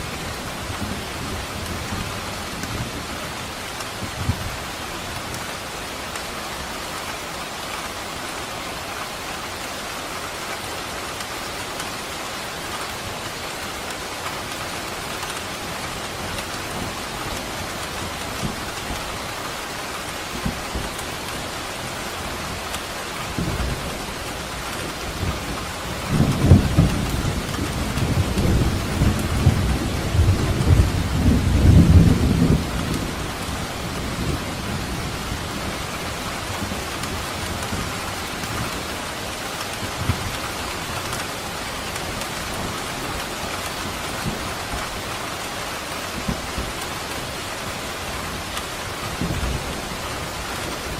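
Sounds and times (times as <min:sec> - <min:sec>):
steady rain falling: 0:00.0 - 0:50.9
rumble of thunder: 0:24.9 - 0:38.9.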